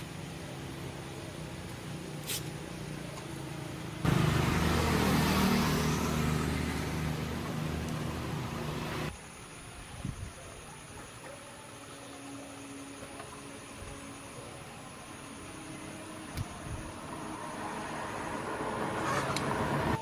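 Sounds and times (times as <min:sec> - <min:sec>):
motorcycle engine running: 0:02.7 - 0:09.1.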